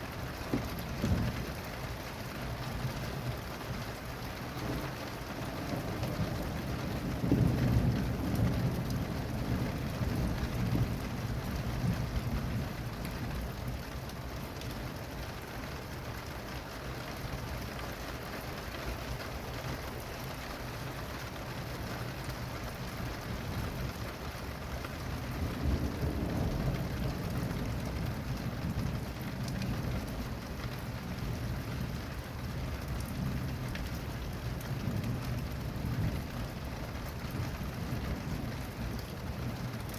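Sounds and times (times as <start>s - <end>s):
rain falling: 0.0s - 39.9s
rolling thunder: 4.6s - 13.8s, 25.1s - 39.9s.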